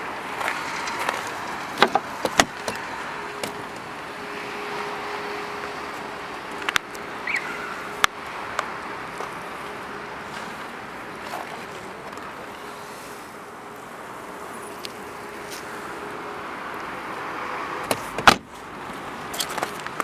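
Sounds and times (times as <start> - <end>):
car door shutting: 1.8 - 3.7, 17.8 - 18.6.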